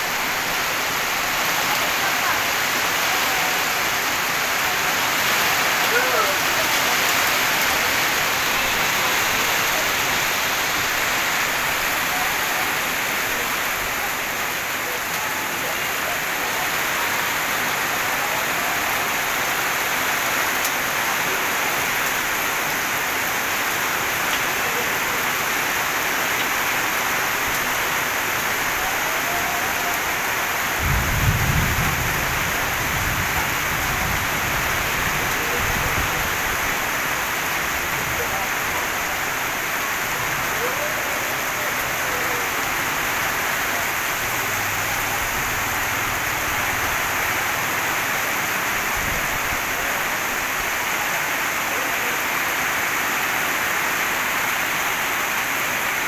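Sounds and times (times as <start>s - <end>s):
heavy rain on pavement: 0.0s - 56.0s.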